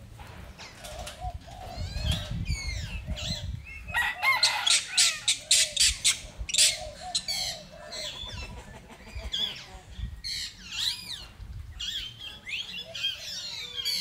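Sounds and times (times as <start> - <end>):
low clucking bird call: 0.7 - 10.6.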